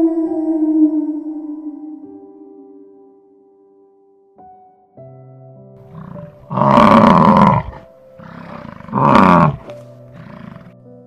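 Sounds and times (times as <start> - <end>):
soft background melody: 0.0 - 11.0
large animal calling: 5.9 - 10.8.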